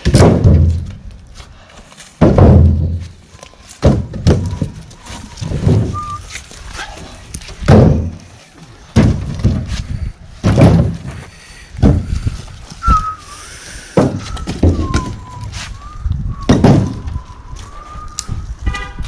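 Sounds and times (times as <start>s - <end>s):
heavy wooden thuds: 0.0s - 1.5s, 2.1s - 17.8s
faint wavering whistle: 5.2s - 6.4s, 12.8s - 13.4s, 14.2s - 18.5s.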